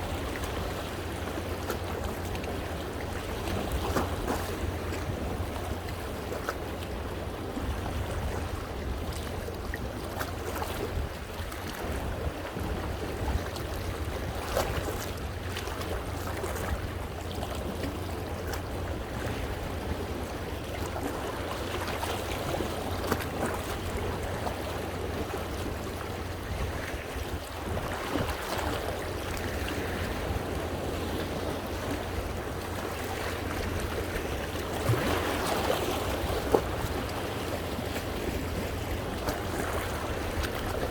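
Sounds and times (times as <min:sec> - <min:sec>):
wind rumble on microphone: 0:00.0 - 0:40.9
waves splashing on rocks: 0:17.5 - 0:40.9.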